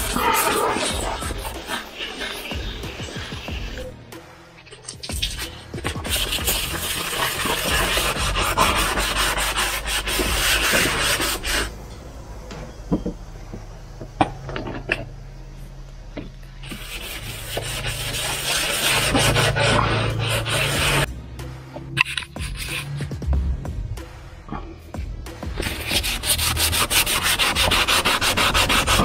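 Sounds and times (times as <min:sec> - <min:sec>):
sandpaper rubbing on plastic: 0:00.0 - 0:03.9, 0:05.1 - 0:11.7, 0:16.6 - 0:21.1, 0:22.0 - 0:23.2, 0:25.5 - 0:29.0.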